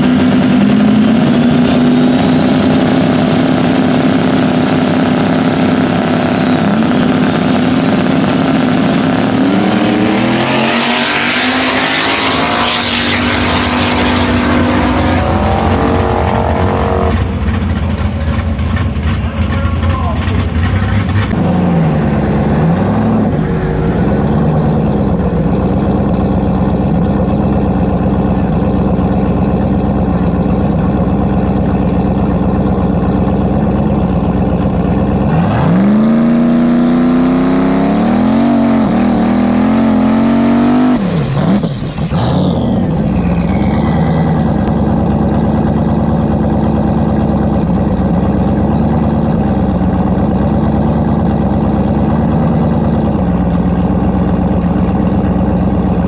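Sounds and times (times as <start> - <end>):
drag-racing engine idling and revving: 0.0 - 56.0
falling whistle: 43.0 - 44.6.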